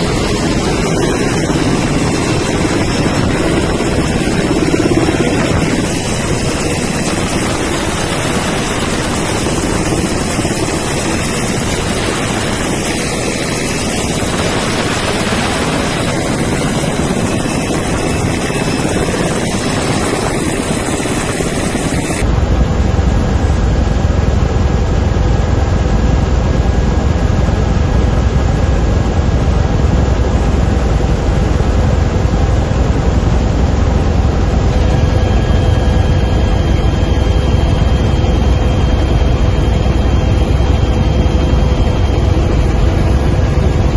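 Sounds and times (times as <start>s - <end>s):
helicopter turbine and rotor noise: 0.0s - 43.9s.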